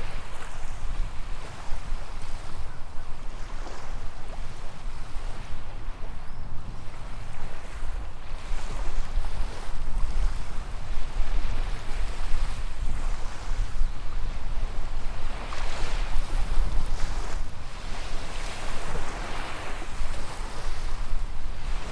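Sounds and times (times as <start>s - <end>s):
wind rumble on microphone: 0.0s - 21.9s
small waves washing onto sand: 14.4s - 21.9s.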